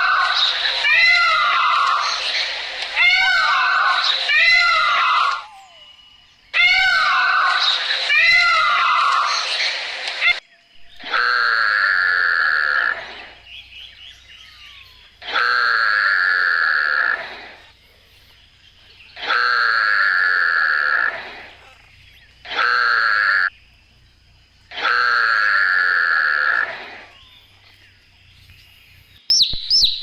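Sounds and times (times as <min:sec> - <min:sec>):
high-pitched animal call: 0:00.0 - 0:18.3, 0:18.9 - 0:23.5, 0:24.7 - 0:27.8.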